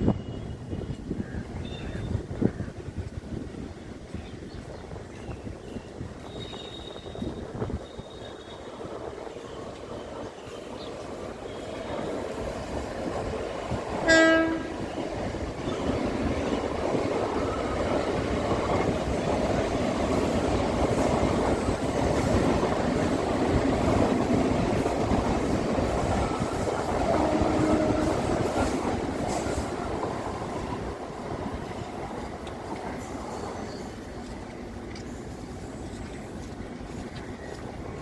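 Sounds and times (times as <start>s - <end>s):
train rumbling past: 0.0s - 38.0s
train horn blast: 14.0s - 15.0s, 27.1s - 28.5s.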